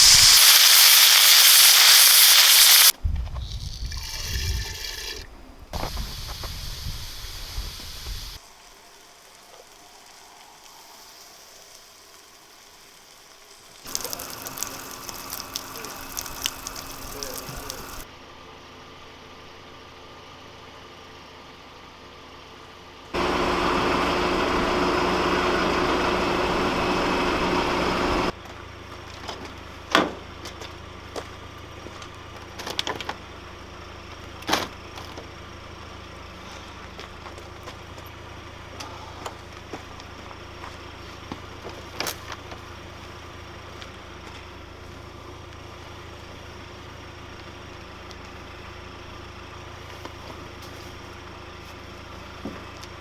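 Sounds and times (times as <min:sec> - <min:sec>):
loud noisy burst: 0:00.0 - 0:02.9
vehicle engine humming: 0:13.4 - 0:53.0.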